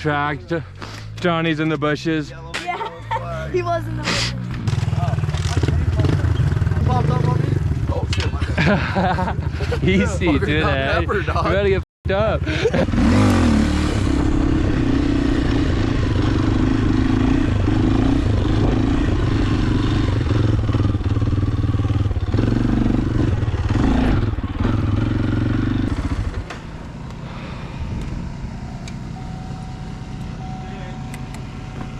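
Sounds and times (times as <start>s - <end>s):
small motorbike engine running: 4.0s - 10.8s, 12.2s - 31.9s.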